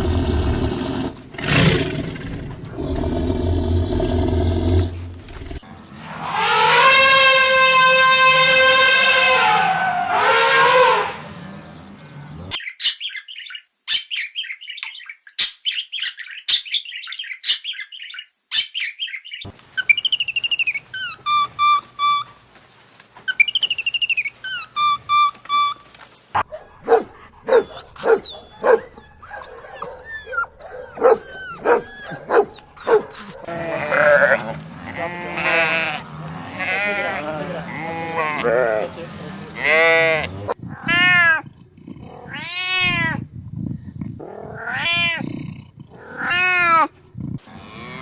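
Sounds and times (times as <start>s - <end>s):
dog barking: 26.4s - 33.6s.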